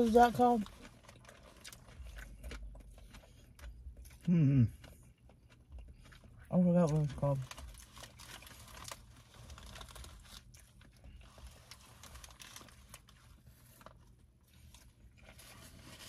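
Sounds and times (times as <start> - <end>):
low steady rumble: 0.0 - 16.0
small crinkles: 0.0 - 16.0
chewing: 0.6 - 15.8.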